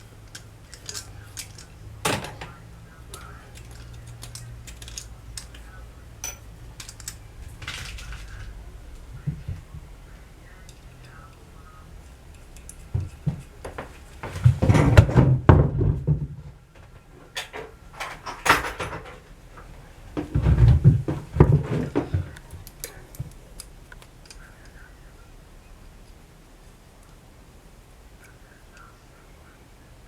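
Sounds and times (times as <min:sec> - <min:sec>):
objects knocking and clattering: 0:00.3 - 0:09.9, 0:12.0 - 0:23.4.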